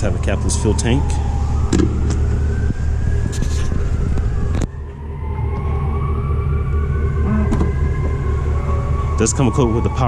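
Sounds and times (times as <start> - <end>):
low rumble: 1.0 - 10.0
faint wailing tone: 4.5 - 10.0.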